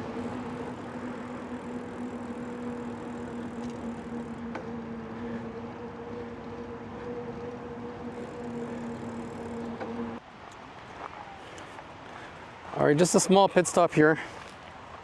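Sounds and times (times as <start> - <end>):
bike rolling: 0.0 - 10.2
constant low hum: 0.0 - 12.6.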